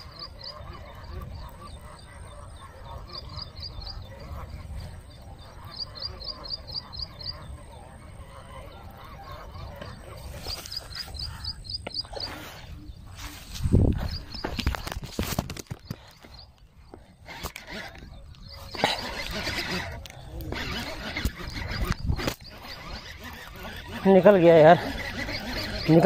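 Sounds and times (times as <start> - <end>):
bird chirping in quick runs: 8.5 - 16.6.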